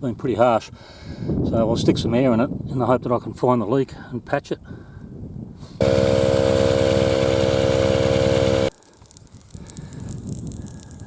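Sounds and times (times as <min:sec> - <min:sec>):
air compressor pulsing hum: 0:05.8 - 0:08.7.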